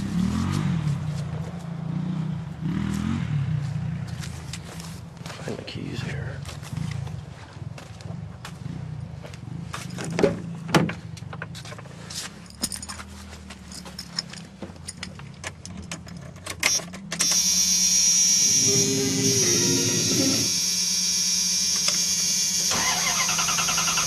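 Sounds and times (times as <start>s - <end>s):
keys jangling: 12.3s - 17.0s
loud steady electronic tone: 17.2s - 22.8s
engine cranking: 21.9s - 24.0s.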